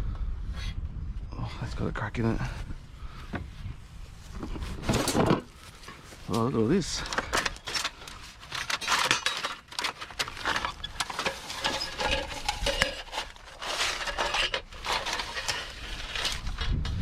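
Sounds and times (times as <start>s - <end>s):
rustling and scraping: 2.5s - 17.0s
metal clinking and clattering: 7.1s - 16.7s.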